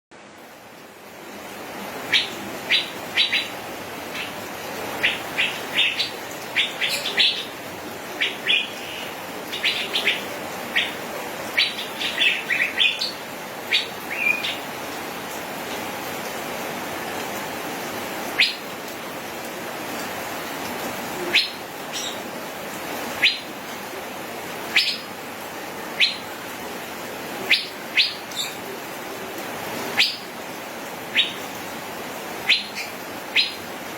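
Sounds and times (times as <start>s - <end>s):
steady hiss: 0.2s - 33.9s
bird calling sharp whistled notes: 30.0s - 30.2s, 31.2s - 31.4s, 32.5s - 33.6s.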